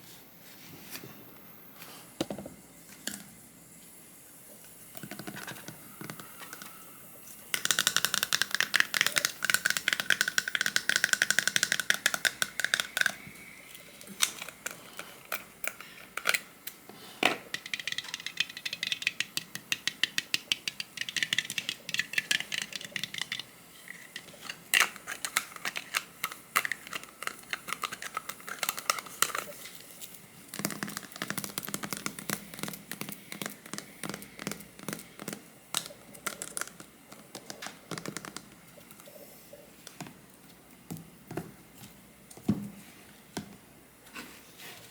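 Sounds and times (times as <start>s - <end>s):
small objects clicking and rattling: 7.5s - 13.3s, 17.5s - 38.5s.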